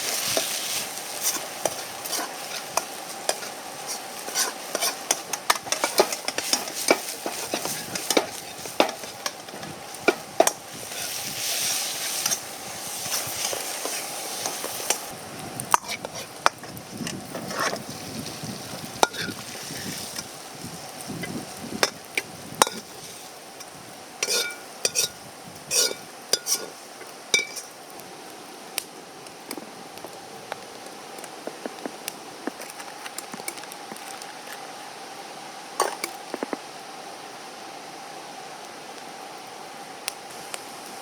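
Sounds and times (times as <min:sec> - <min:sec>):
metal spatula scraping wok: 0:00.0 - 0:15.1, 0:15.7 - 0:18.0, 0:19.0 - 0:20.4, 0:21.2 - 0:27.8
food sizzling in a wok: 0:00.0 - 0:41.0.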